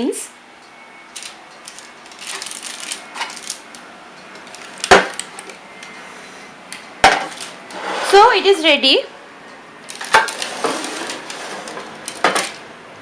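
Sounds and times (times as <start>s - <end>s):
tableware scraping: 7.1s - 8.3s, 10.0s - 12.6s.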